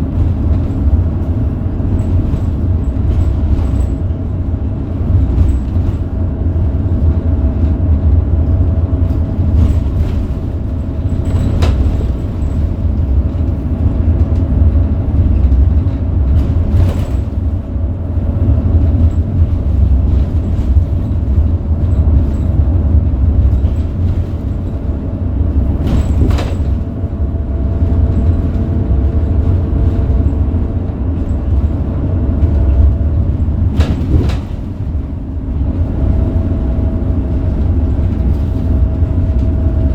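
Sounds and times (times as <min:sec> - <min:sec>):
bus diesel engine rumbling: 0:00.0 - 0:39.9
sharp knocks and rattles: 0:09.0 - 0:35.2.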